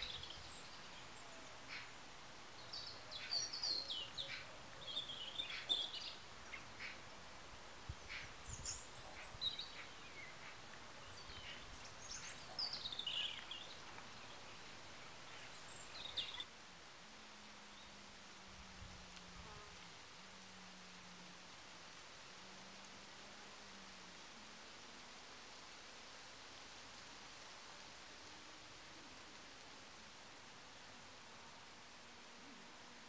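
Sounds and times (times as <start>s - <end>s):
small birds chirping: 0.0s - 16.5s.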